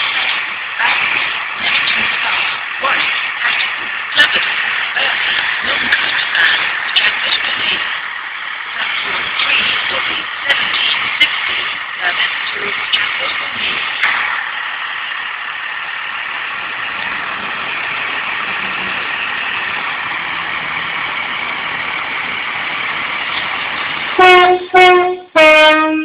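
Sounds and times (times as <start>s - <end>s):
train rushing noise: 0.0s - 26.0s
train horn blasts: 24.2s - 26.0s.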